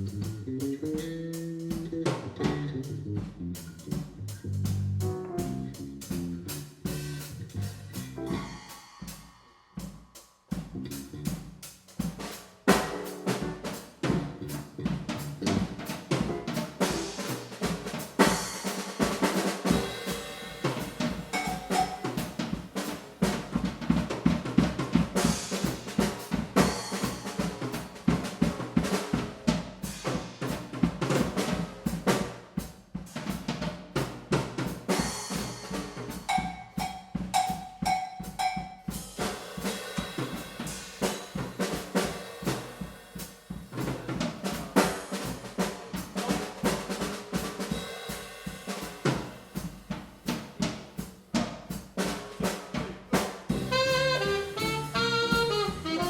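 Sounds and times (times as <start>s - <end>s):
jazz drum solo: 0.0s - 56.0s
short pitched drum hits: 53.5s - 56.0s.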